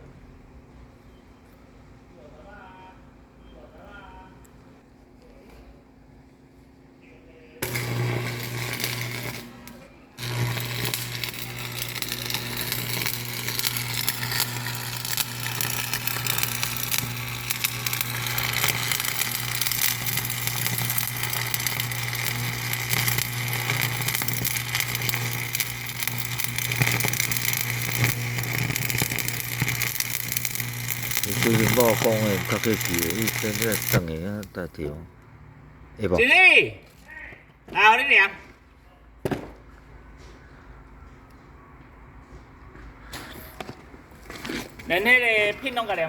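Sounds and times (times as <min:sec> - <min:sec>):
machine humming and hissing: 0:07.6 - 0:34.0.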